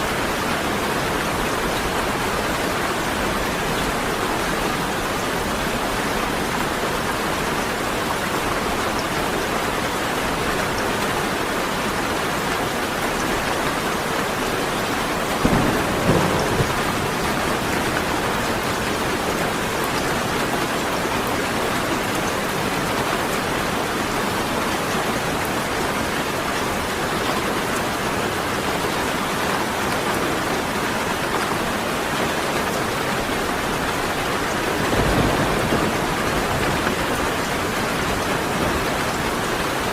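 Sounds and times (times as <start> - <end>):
steady rain falling: 0.0 - 39.9
thunder rumble: 15.3 - 18.9, 34.6 - 39.1.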